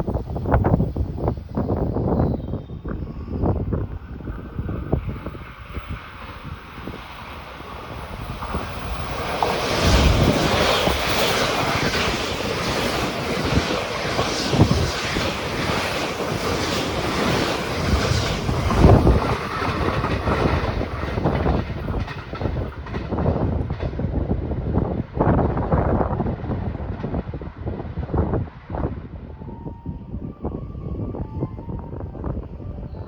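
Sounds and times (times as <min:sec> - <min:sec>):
train passing: 0:00.0 - 0:33.0
wheels clicking over rail joints: 0:04.9 - 0:24.2.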